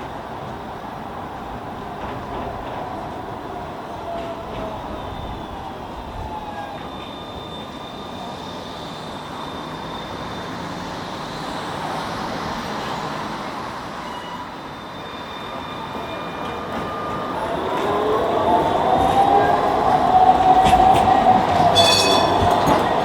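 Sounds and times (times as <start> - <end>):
tram running rumble: 0.0 - 23.0
wheels squealing on track: 6.5 - 13.0, 13.9 - 17.3, 19.2 - 23.0.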